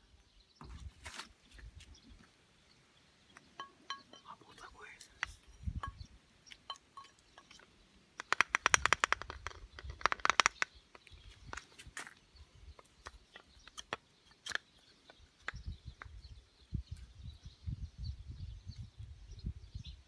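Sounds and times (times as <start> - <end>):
hand tools and metal parts clattering: 3.4 - 4.4, 5.0 - 12.1
sharp clicks: 8.2 - 11.7.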